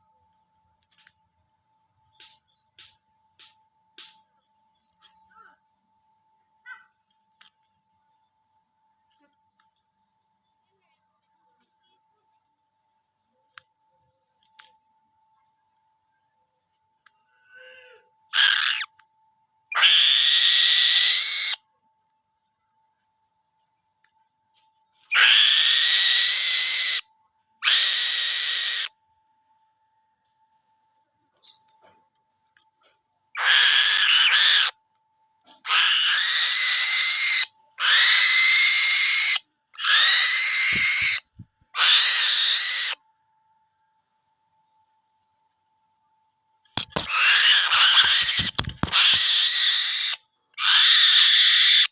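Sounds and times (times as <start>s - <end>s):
bird of prey screeching: 18.3s - 18.9s, 19.7s - 21.6s, 25.1s - 28.9s, 33.4s - 34.8s, 35.6s - 43.0s, 46.8s - 51.9s
falcon calling: 18.3s - 18.9s, 19.7s - 21.6s, 25.1s - 27.0s, 27.6s - 28.9s, 33.4s - 34.8s, 35.7s - 43.0s, 46.8s - 51.9s.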